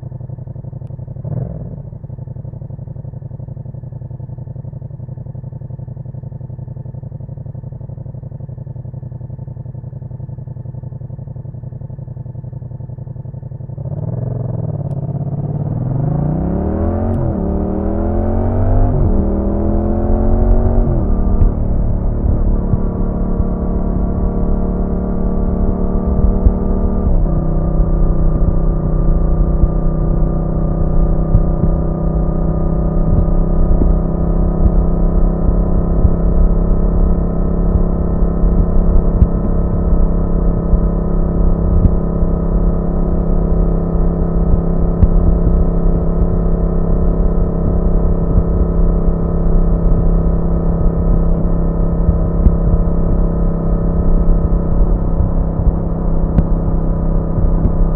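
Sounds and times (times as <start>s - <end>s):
motorcycle engine cruising: 0.0s - 57.9s
wind rumble: 15.0s - 57.9s.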